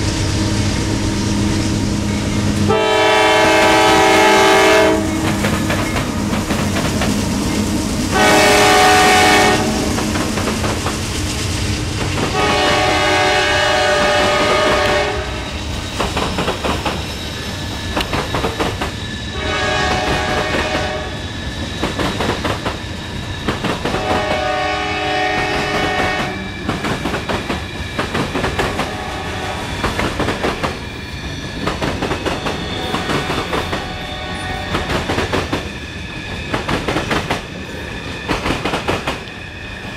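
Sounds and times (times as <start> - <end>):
train wheels clacking over rail joints: 2.6 - 11.2, 15.8 - 39.4
train horn blasts: 2.7 - 5.4, 8.1 - 10.4, 12.3 - 15.5, 19.4 - 21.2, 23.9 - 26.5, 28.7 - 29.7, 32.7 - 34.9.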